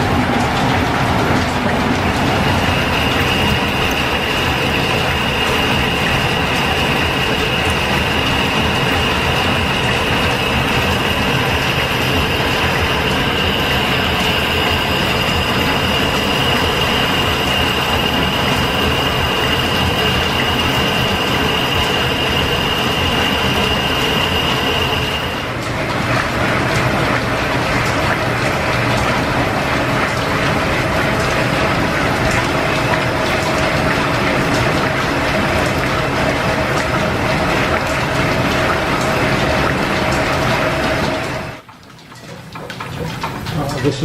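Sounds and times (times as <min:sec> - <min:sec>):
high steady whine: 0:00.0 - 0:26.0
lathe gear-train running: 0:00.0 - 0:44.0.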